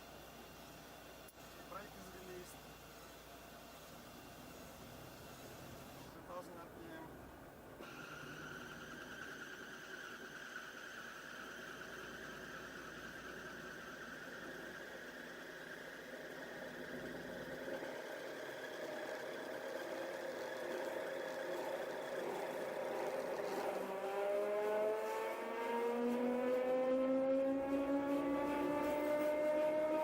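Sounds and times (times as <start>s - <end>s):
gyroplane engine and propeller: 7.8s - 30.0s.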